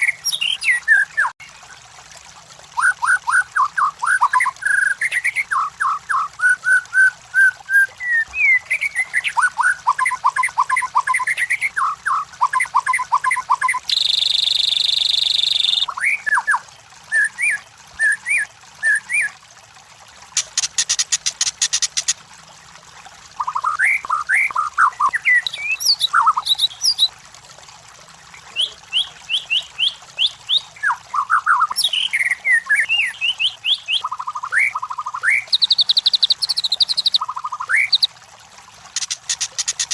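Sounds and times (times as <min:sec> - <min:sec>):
bird singing whistled phrases: 0:02.8 - 0:19.3, 0:23.4 - 0:27.1, 0:28.5 - 0:38.1
fast ticking bird trill: 0:08.0 - 0:16.5, 0:20.4 - 0:22.2, 0:28.6 - 0:38.1, 0:38.9 - 0:39.9.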